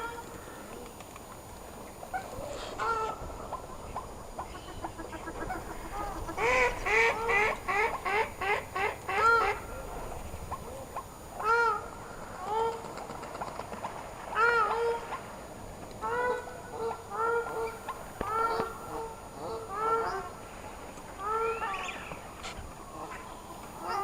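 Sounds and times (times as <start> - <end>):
geese honking: 2.1 - 12.8, 21.2 - 24.0.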